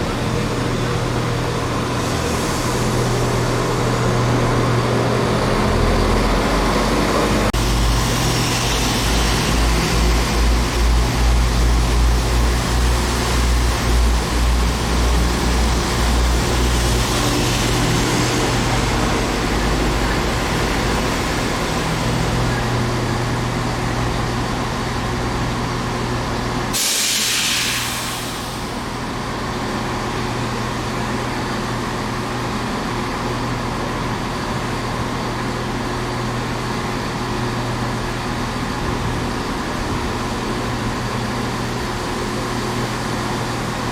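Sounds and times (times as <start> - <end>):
diesel train engine rumbling: 0.0 - 43.9
air brake hiss: 26.7 - 28.9.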